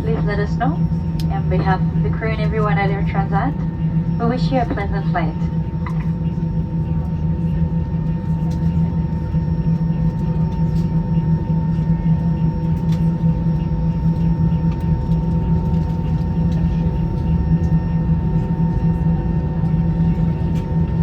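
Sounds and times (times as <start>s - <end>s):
aircraft cabin engine drone: 0.0s - 21.0s
steady hum: 0.0s - 21.0s.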